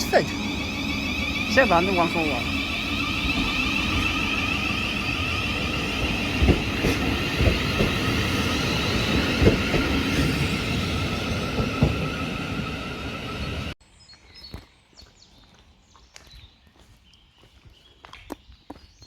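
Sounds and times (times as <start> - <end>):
wheels knocking over rail joints: 0.0 - 13.7
train electric whine: 0.0 - 13.8.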